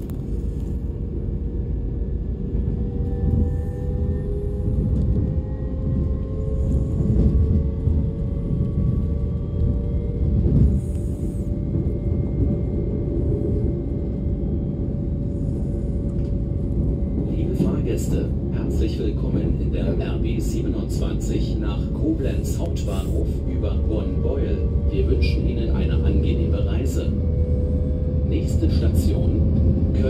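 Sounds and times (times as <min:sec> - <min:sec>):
electric traction drive whine: 0:00.0 - 0:17.3
train wheels rumbling on track: 0:00.0 - 0:30.0.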